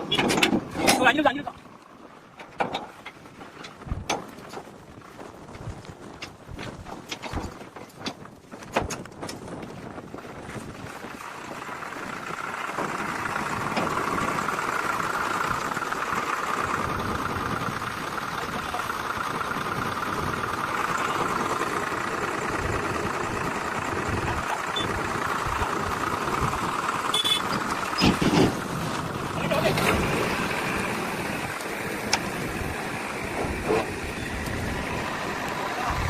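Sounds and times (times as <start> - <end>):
vehicle engine running: 9.5 - 36.0.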